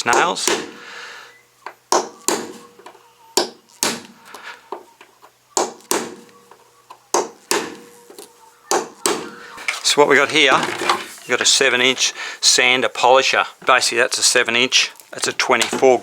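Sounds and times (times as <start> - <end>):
hammer striking nail punch: 0.1 - 0.8.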